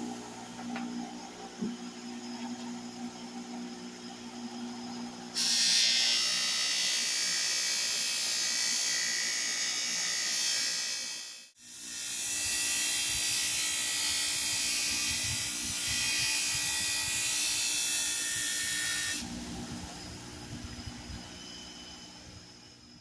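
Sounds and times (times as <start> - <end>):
small electric motor whirring: 5.4 - 23.0.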